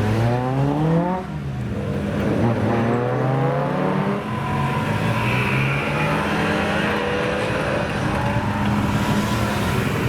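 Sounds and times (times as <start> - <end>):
car engine accelerating: 2.0 - 10.0.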